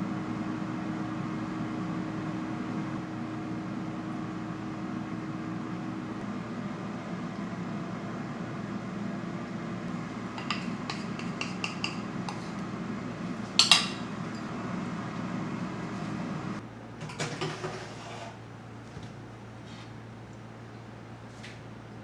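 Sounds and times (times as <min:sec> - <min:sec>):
kitchen appliance hum: 0:00.0 - 0:22.0
dishes and utensils clinking: 0:10.4 - 0:12.5, 0:13.6 - 0:14.5.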